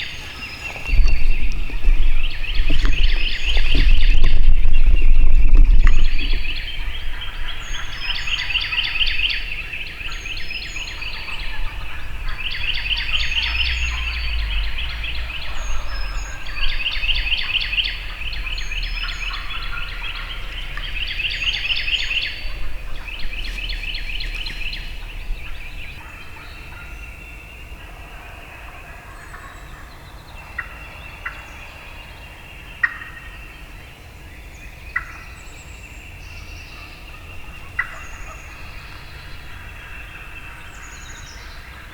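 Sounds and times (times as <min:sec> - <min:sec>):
turkey gobbling: 0:00.0 - 0:09.7, 0:10.8 - 0:27.1, 0:36.8 - 0:41.9
songbird chirps: 0:00.0 - 0:41.9.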